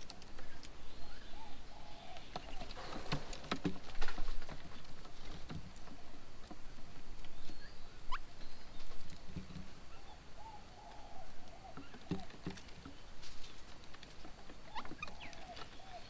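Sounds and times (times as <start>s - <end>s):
bird low wavering call: 1.0s - 2.8s, 9.9s - 12.3s.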